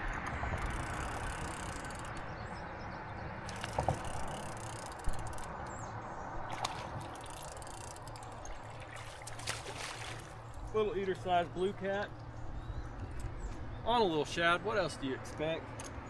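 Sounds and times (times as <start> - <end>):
fishing reel cranking and ratcheting: 0.5 - 2.2, 3.5 - 5.6, 7.0 - 8.6.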